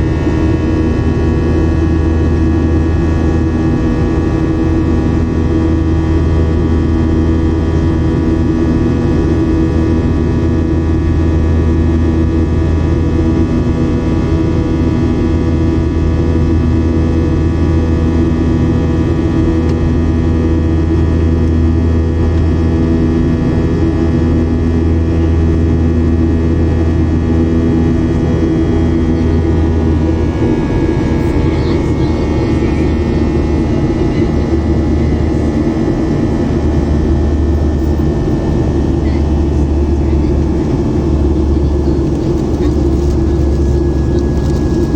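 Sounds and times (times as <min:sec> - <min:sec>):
jet engines from inside cabin: 0:00.0 - 0:44.9.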